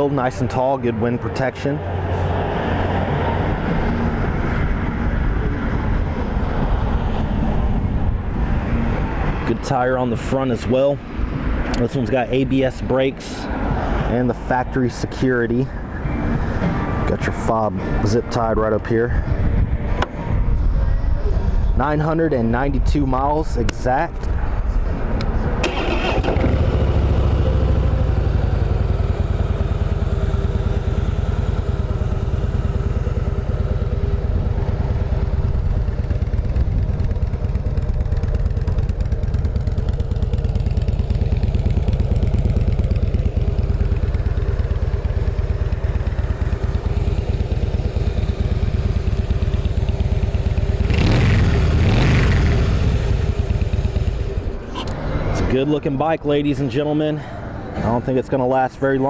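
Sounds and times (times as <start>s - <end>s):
motorcycle engine idling: 24.2s - 55.3s.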